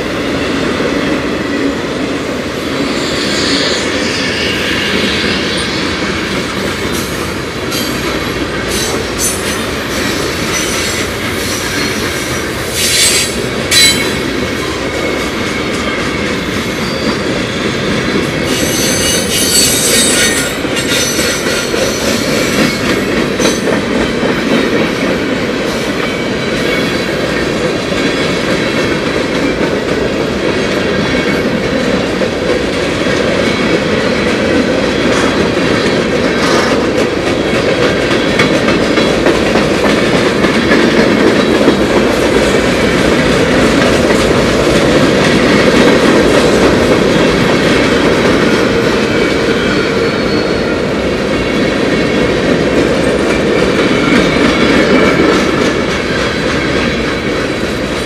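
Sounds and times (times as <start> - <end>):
freight train rumbling by: 0.0 - 58.0
high-pitched wheel squeals: 18.6 - 22.0, 49.7 - 50.8.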